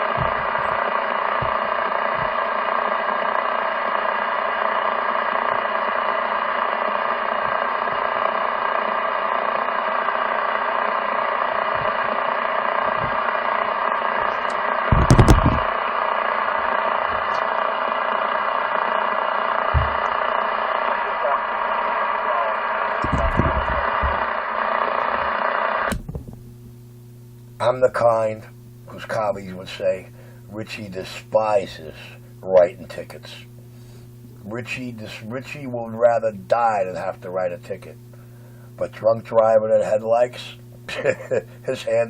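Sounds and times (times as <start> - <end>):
radio static hiss: 0.0 - 42.0
short thump: 0.2 - 0.8, 14.9 - 15.7, 19.7 - 20.2, 23.0 - 24.3, 25.9 - 26.4.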